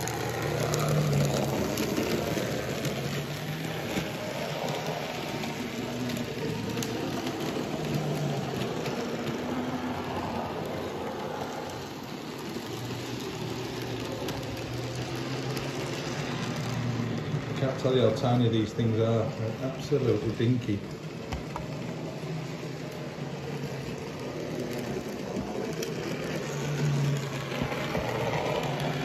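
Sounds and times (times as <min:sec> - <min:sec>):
model train rattling whirr: 0:00.0 - 0:29.0.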